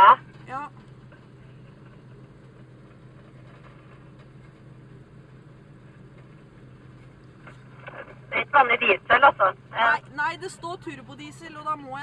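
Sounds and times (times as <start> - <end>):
low hum: 0.0 - 11.8.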